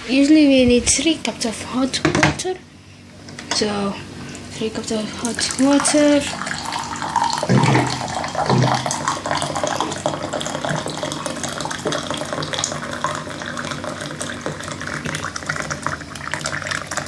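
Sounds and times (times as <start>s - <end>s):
hot water pouring into a cup: 5.2s - 17.0s.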